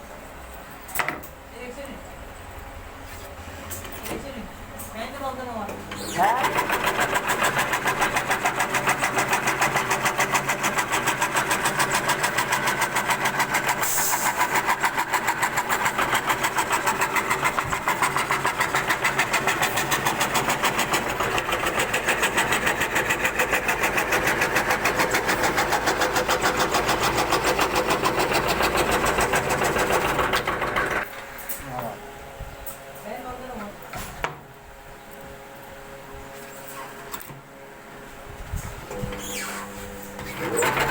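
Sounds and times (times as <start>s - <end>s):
wood carving router running: 6.2s - 13.8s, 14.4s - 31.0s.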